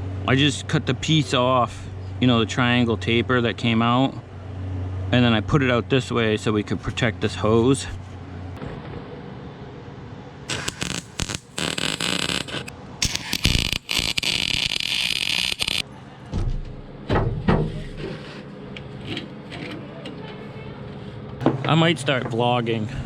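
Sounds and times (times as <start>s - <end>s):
welder arcing on steel: 10.5s - 15.8s.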